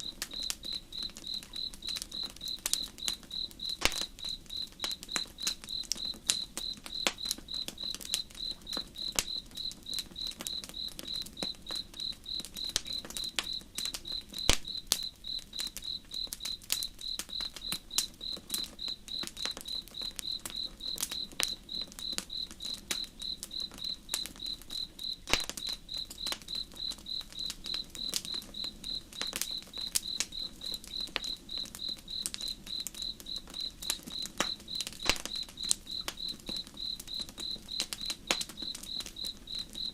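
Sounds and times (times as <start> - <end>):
campfire crackling: 0.0 - 39.9
campfire pops: 0.0 - 39.9
cricket chirping: 0.0 - 39.9.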